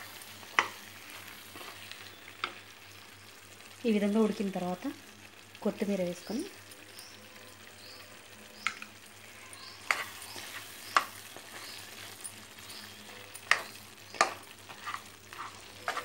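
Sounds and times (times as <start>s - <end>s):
curry sizzling in a pan: 0.0s - 16.0s
spoon knocking against pan: 13.4s - 14.4s.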